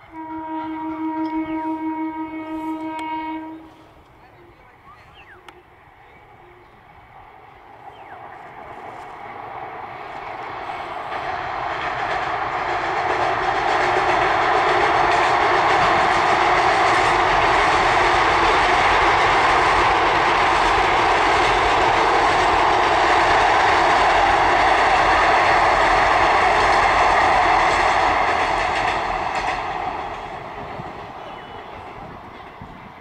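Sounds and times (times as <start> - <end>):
train wheels clattering on bridge: 10.1 - 33.0.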